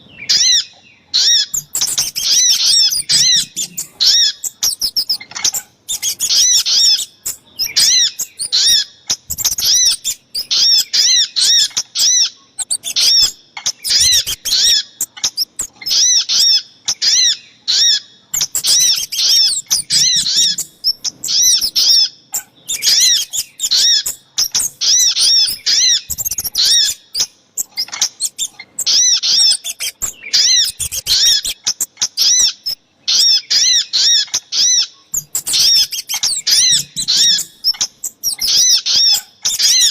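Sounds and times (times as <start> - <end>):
high-pitched bird chirps: 0.0 - 39.9.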